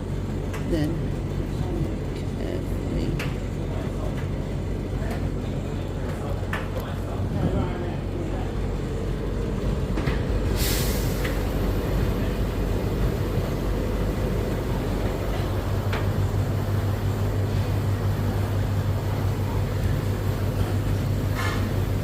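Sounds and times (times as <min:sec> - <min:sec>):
tumble dryer humming: 0:00.0 - 0:22.0
brief hiss: 0:10.6 - 0:11.3.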